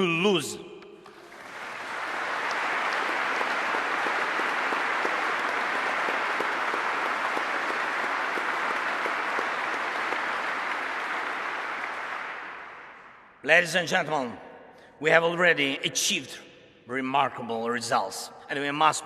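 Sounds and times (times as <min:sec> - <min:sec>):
audience applause: 0:01.0 - 0:13.0.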